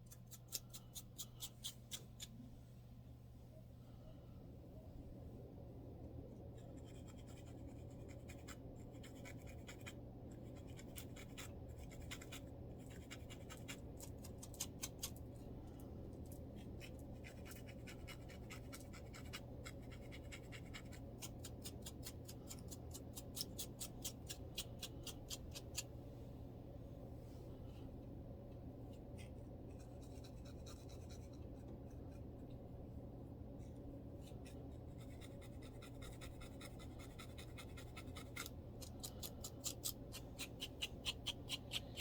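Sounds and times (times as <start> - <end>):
fingers scratching scalp: 34.3 - 42.0.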